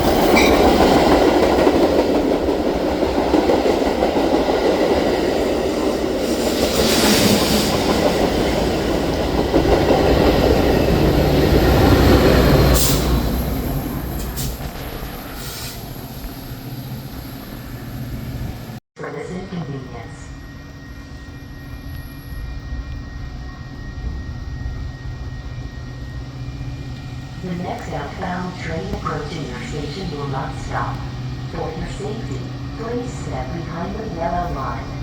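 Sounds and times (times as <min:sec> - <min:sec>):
train wheels rumbling on rails: 0:00.0 - 0:18.8.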